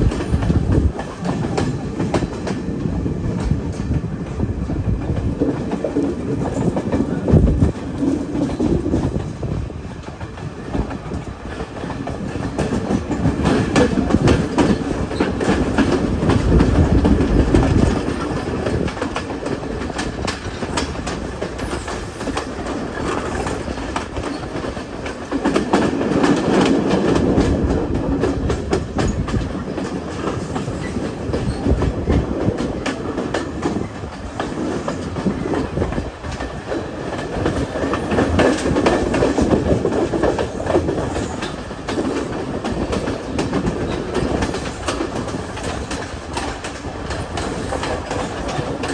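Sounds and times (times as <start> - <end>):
passenger train running on track: 0.0 - 48.9.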